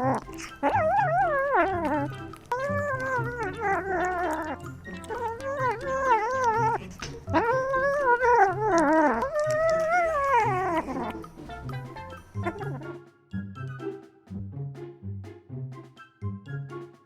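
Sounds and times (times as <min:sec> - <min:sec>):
pet howling: 0:00.0 - 0:11.3, 0:12.3 - 0:12.9.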